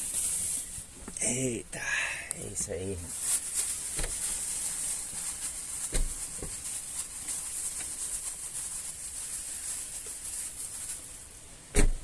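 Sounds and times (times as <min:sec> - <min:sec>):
steady high hiss: 0:00.0 - 0:11.8
dull knocks: 0:11.7 - 0:12.0.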